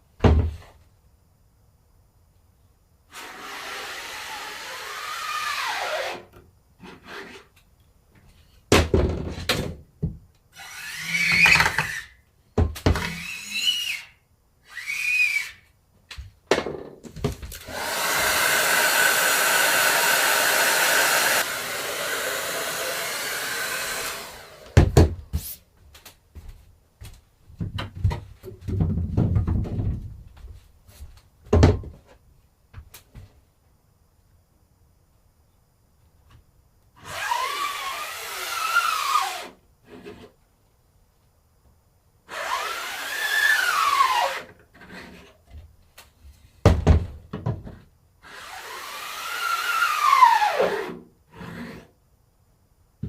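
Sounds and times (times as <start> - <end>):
hair dryer blowing: 17.6 - 24.8
knocks and clatter of handling: 27.5 - 30.6.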